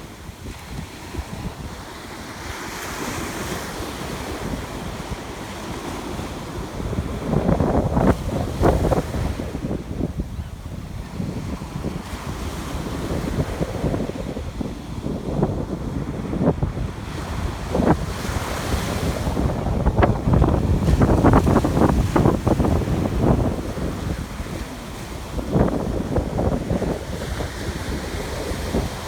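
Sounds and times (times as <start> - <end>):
ocean surf on a beach: 0.0 - 29.0
wind buffeting microphone: 0.0 - 29.0.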